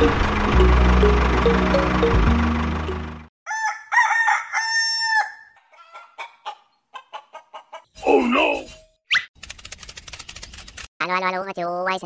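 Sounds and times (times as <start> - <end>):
rooster crowing: 3.5 - 6.2
chicken clucking: 5.6 - 7.9.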